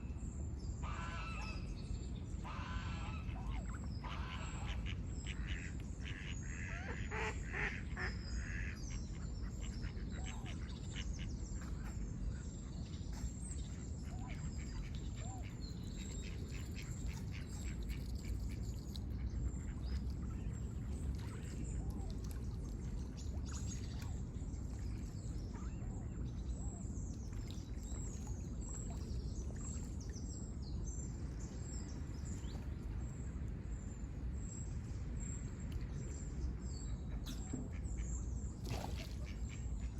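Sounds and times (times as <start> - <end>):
ducks quacking: 4.0 - 8.8
low background rumble: 8.2 - 38.6.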